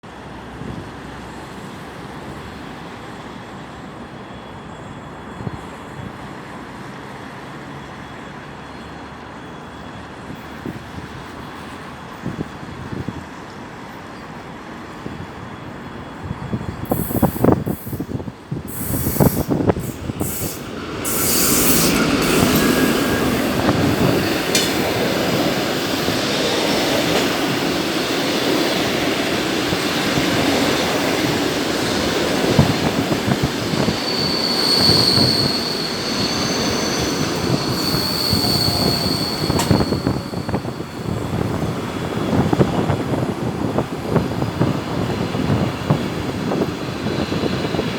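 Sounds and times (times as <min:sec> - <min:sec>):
train rumbling past: 0:00.1 - 0:47.9
high wheel squeal: 0:15.4 - 0:41.7
rail clicks: 0:18.7 - 0:47.9.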